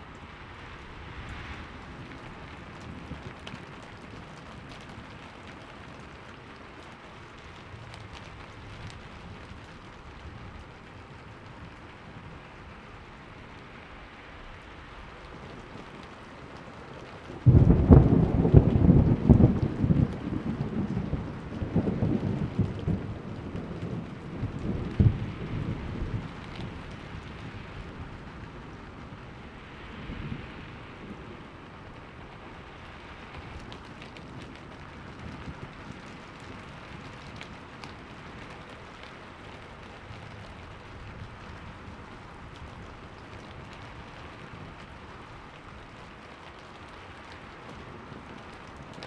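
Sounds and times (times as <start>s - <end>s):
steady rain: 0.0s - 49.0s
thunder rumbling: 15.1s - 48.9s.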